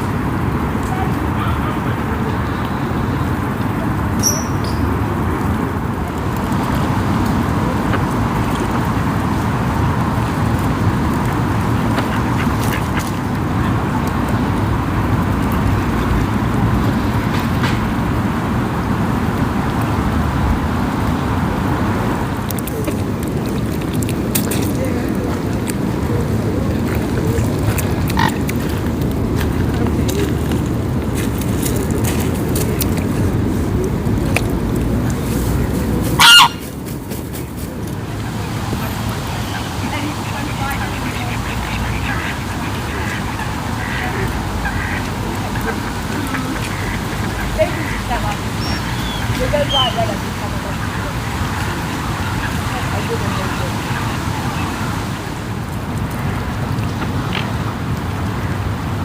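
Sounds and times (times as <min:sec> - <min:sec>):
steady low rumble: 0:04.8 - 0:59.0
waterfowl calling: 0:11.6 - 0:13.8, 0:27.8 - 0:29.0, 0:36.0 - 0:36.9, 0:38.0 - 0:55.0.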